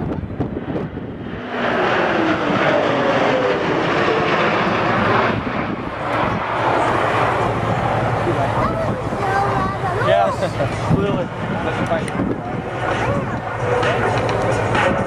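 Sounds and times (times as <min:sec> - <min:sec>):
jet engines roaring in flight: 0:00.0 - 0:15.0.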